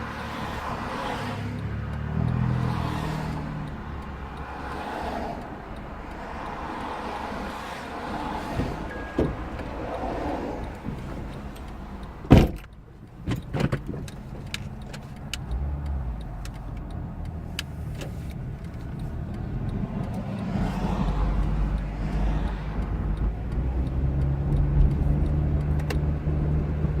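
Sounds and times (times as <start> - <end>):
loud thump: 12.3 - 12.7.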